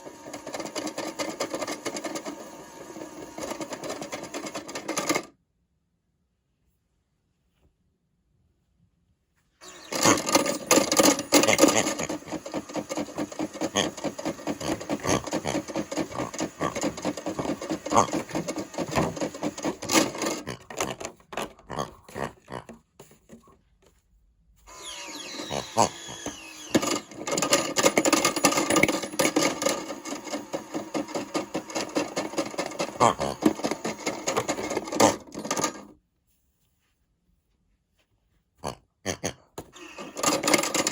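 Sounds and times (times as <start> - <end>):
plastic toys rattling in drum: 0.0 - 5.3, 9.7 - 23.6, 25.3 - 36.0, 39.7 - 40.9
toy washing machine motor spinning: 0.0 - 5.3, 9.6 - 23.4, 24.7 - 35.9, 39.6 - 40.9.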